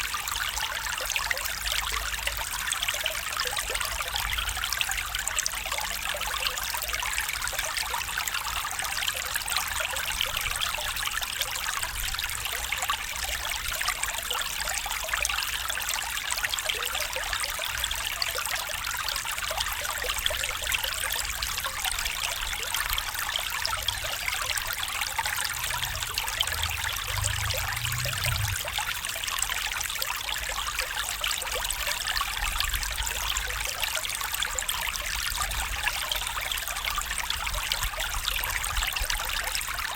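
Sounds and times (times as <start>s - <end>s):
stream flowing: 0.0s - 39.9s
faint low rumble: 23.8s - 29.5s.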